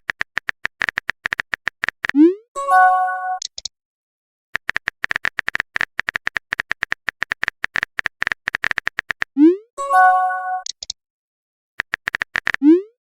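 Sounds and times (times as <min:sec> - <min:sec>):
typing clicks: 0:00.0 - 0:02.2, 0:03.4 - 0:03.7, 0:04.6 - 0:09.4, 0:10.6 - 0:11.0, 0:11.8 - 0:12.7.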